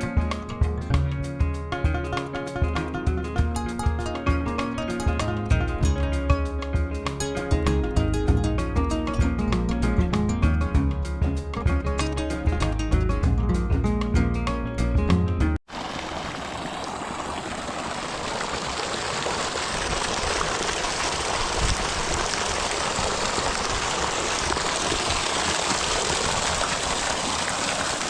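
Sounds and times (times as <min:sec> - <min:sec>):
water rushing and trickling: 0:00.0 - 0:13.3, 0:15.7 - 0:28.0
background music: 0:00.0 - 0:15.6.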